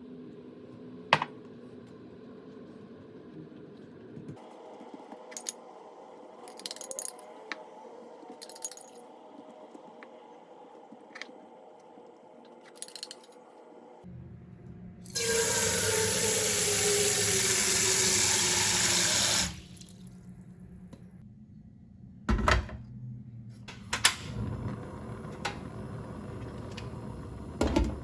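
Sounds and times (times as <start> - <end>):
kitchen tap running: 15.1 - 20.2.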